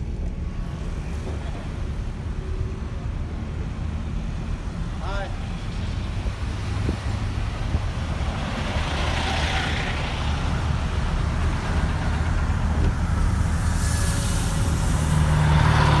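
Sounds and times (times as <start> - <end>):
heavy vehicle engine rumbling: 0.0 - 16.0
air hissing: 11.2 - 16.0.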